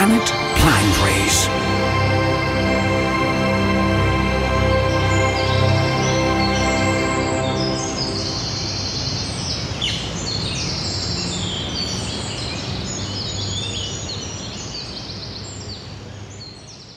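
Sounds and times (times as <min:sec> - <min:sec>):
songbirds chirping and trilling: 0:04.8 - 0:16.9.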